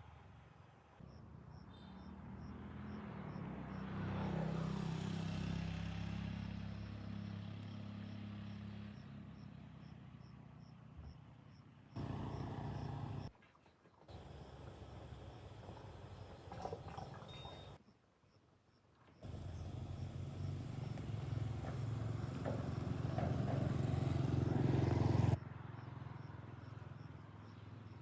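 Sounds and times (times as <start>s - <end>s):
vehicle engine passing: 12.0s - 13.3s, 19.2s - 28.0s.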